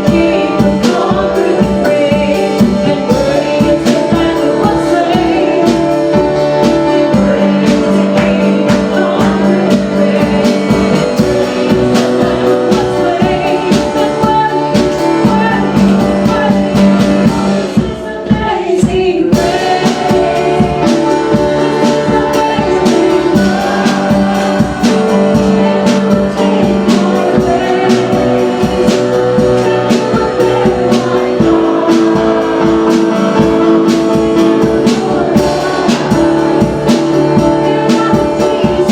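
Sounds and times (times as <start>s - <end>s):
band playing worship music: 0.0s - 38.9s
voices singing held notes: 0.0s - 38.9s.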